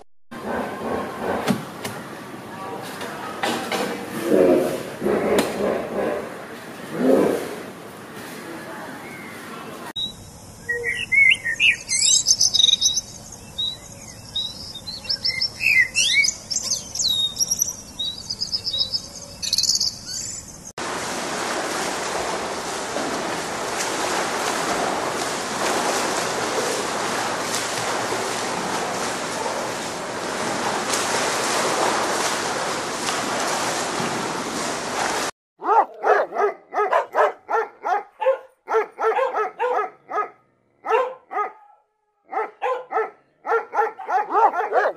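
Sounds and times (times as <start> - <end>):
small birds chirping: 10.0 - 20.7
dog barking rapidly: 35.6 - 44.9.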